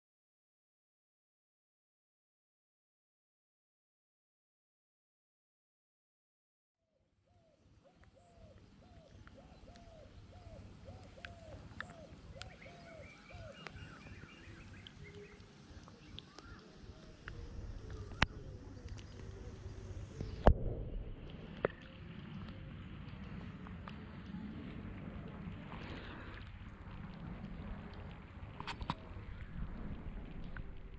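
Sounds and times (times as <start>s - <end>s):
low rumble of water and wind: 7.3s - 30.9s
bird hooting: 7.4s - 20.4s
water washing over camera: 14.8s - 30.9s.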